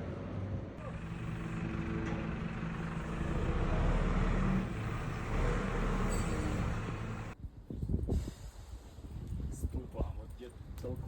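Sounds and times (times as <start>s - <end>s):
road noise: 0.0s - 7.4s
vehicle engine hum: 0.0s - 7.4s.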